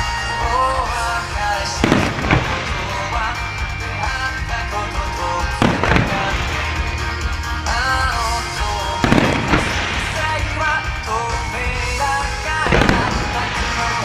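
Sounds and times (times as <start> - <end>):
firework crackle: 0.0 - 14.0
pop-rock music over loudspeakers: 0.0 - 14.0
firework shells bursting: 1.7 - 4.2, 5.6 - 11.6, 12.5 - 14.0.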